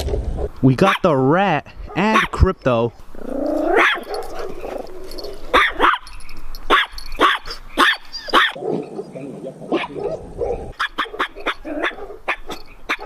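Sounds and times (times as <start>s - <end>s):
dog barking: 0.8s - 1.1s, 2.1s - 2.4s, 3.7s - 4.9s, 5.5s - 6.1s, 6.7s - 8.9s, 9.7s - 13.0s.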